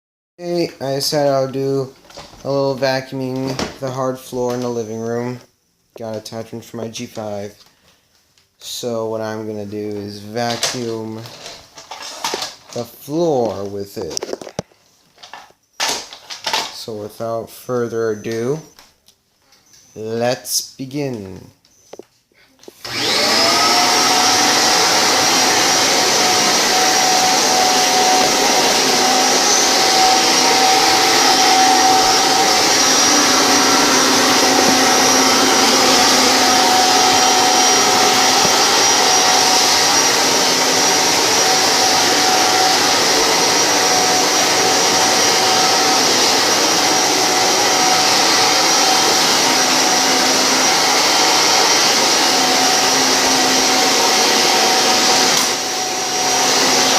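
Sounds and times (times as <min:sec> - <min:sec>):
vacuum cleaner motor whine: 0:22.6 - 0:56.9.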